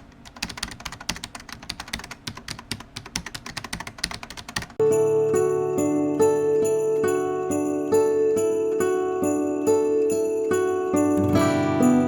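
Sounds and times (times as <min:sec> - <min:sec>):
rapid keyboard typing: 0:00.0 - 0:04.8
music with bell-like chimes: 0:04.8 - 0:12.0.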